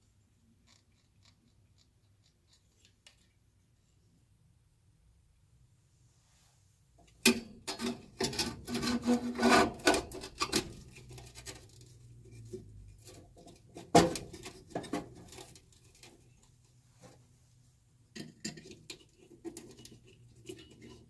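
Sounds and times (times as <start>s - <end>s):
soft rubbing and handling: 5.8s - 7.2s, 14.4s - 18.1s
clicks and clatter of hard parts: 7.1s - 17.2s, 18.1s - 21.0s.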